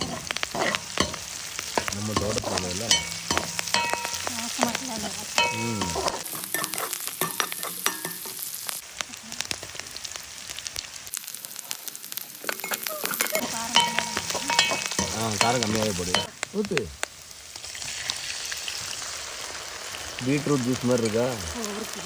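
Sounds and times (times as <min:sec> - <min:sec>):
metal spoon scraping a pan: 0:00.0 - 0:08.6, 0:12.5 - 0:16.3
food sizzling in hot oil: 0:00.0 - 0:22.0.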